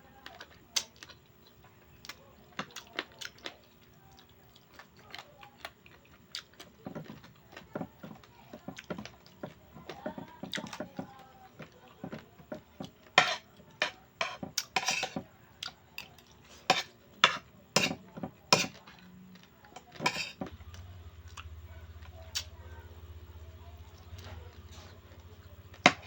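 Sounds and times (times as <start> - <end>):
cutlery clinking on plate: 13.2 - 15.2, 16.7 - 18.8, 19.9 - 20.5.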